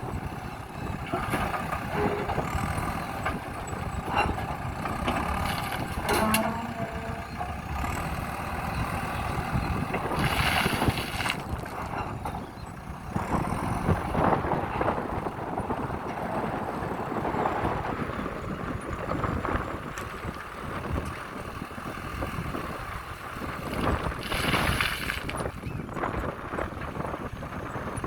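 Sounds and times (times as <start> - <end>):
diesel engine working: 0.0 - 28.0
gravel rattling and pouring: 10.0 - 11.8, 23.6 - 25.6.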